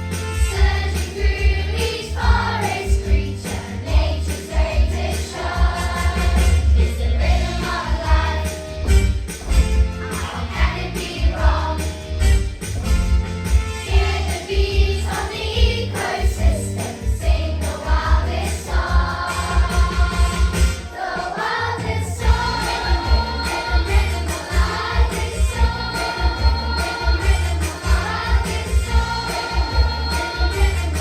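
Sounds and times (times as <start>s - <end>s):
children's choir singing: 0.4s - 8.8s, 10.1s - 12.2s, 13.8s - 31.0s.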